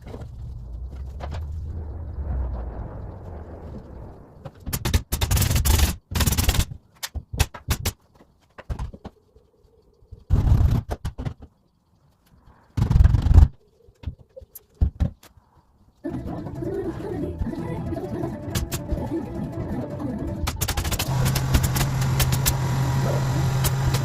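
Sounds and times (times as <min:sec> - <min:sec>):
low rumble: 0:00.2 - 0:04.6
sharp clicks and knocks: 0:04.4 - 0:09.3, 0:10.2 - 0:15.4, 0:20.4 - 0:22.6
woodworking tool noise bursts: 0:20.8 - 0:24.0.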